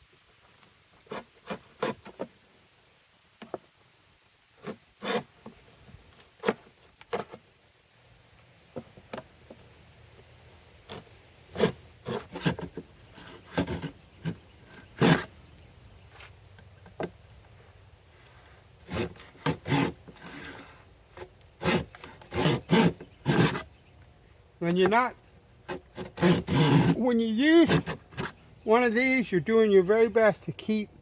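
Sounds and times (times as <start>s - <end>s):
tools knocking and scraping on wood: 27.7s - 28.4s.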